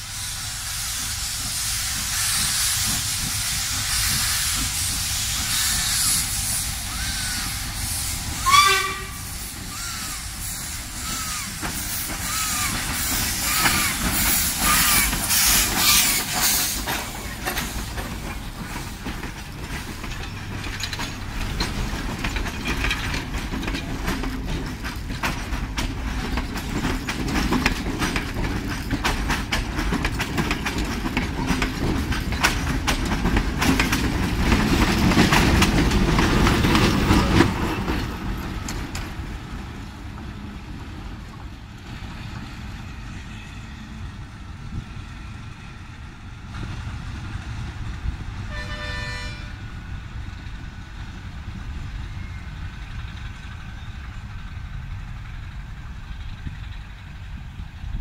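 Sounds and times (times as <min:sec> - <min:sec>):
train wheels clacking over rail joints: 0:00.0 - 0:44.8
diesel locomotive rumble: 0:00.0 - 0:58.0
train horn blast: 0:08.4 - 0:09.4, 0:48.4 - 0:49.6.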